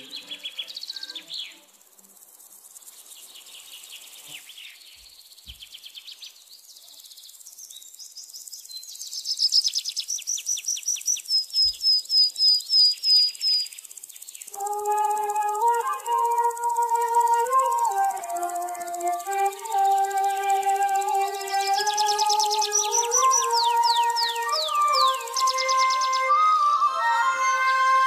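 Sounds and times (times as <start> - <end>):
birds chirping and trilling: 7.6 - 28.0
music: 14.6 - 28.0.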